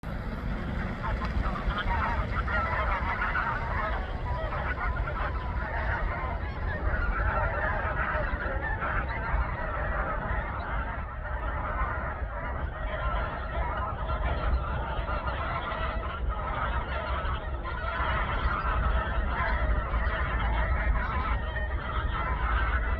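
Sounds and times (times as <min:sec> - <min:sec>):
low rumble: 0:00.0 - 0:10.8
geese honking: 0:00.0 - 0:22.9.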